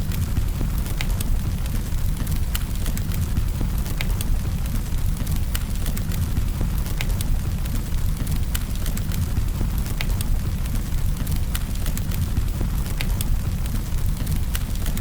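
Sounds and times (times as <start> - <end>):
burning wood crackling and popping: 0.0 - 15.0
campfire low rumble: 0.0 - 15.0.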